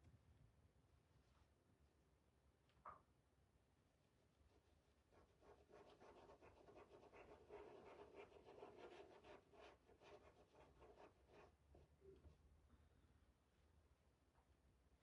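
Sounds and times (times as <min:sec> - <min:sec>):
paintbrush stroking paint: 0:05.2 - 0:11.6.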